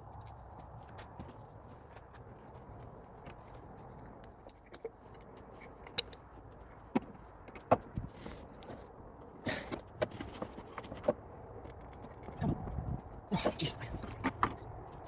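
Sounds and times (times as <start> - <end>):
hand tools clicking and knocking: 4.0 - 8.8.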